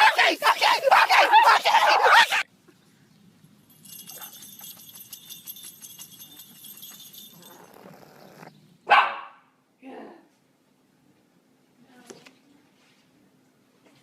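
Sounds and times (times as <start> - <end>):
small bells jingling: 3.4 - 8.5.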